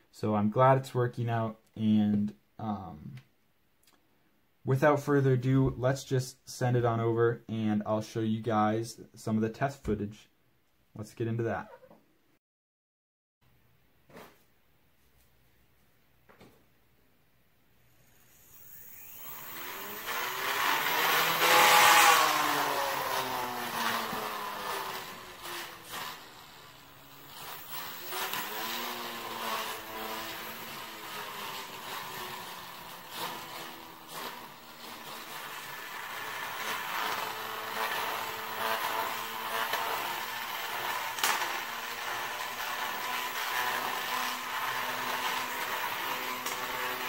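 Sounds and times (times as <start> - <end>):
robot spinner whine: 17.8 - 22.3.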